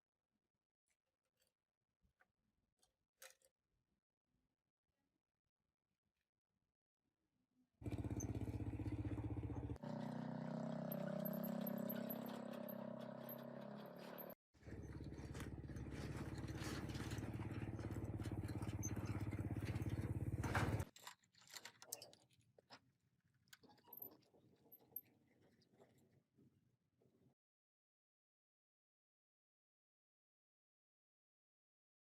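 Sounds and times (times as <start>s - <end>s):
plate compactor engine running: 7.8s - 20.9s.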